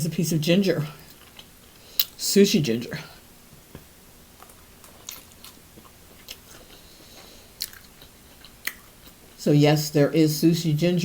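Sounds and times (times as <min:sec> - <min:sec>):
person chewing food: 0:01.0 - 0:02.2, 0:03.5 - 0:09.4.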